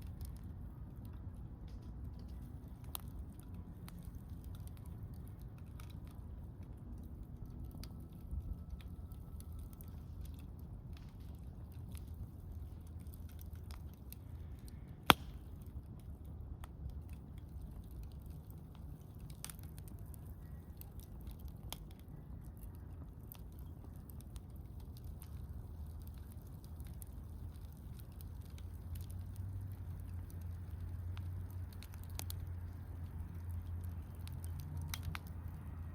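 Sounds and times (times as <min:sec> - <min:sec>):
campfire crackling: 0:00.0 - 0:35.9
low steady rumble: 0:00.0 - 0:35.9.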